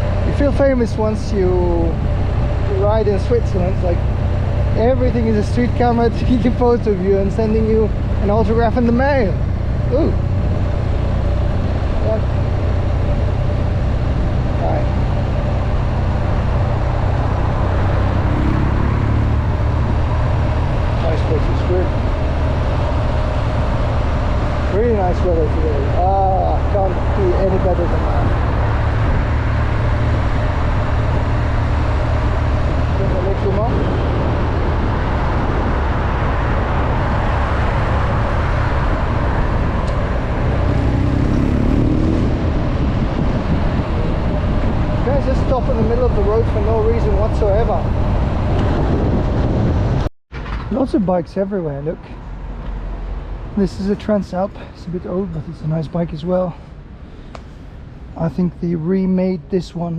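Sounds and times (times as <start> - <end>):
wind noise on microphone: 8.7 - 51.0.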